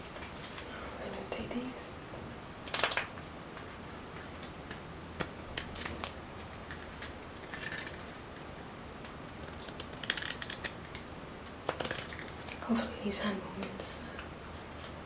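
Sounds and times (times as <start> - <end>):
playing cards snapping: 2.7 - 3.1, 4.4 - 8.0, 9.4 - 12.6.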